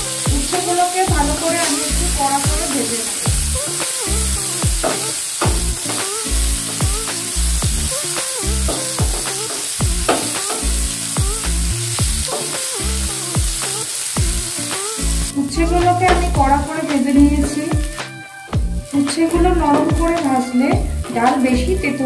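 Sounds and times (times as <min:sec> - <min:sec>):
background music with steady beat: 0:00.0 - 0:22.0
vegetables sizzling in oil: 0:00.0 - 0:22.0.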